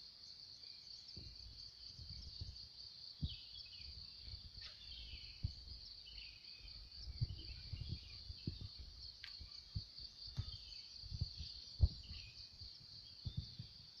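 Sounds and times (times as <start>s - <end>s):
insects droning: 0.0s - 14.0s
bird chirps: 0.3s - 14.0s
low thumps: 7.0s - 12.4s.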